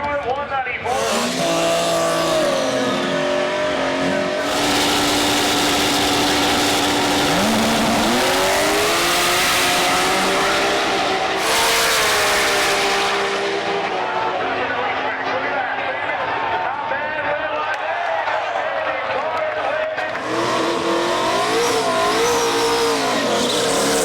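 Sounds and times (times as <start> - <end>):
race car engine at high revs: 0.8 - 16.6, 20.0 - 24.0.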